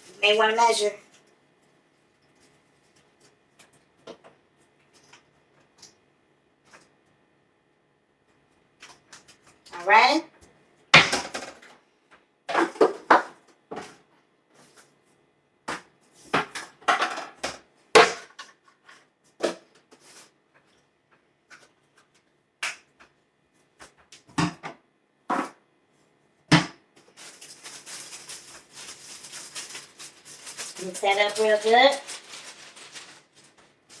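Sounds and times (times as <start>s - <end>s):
flour rustling while stirred: 27.0s - 34.0s.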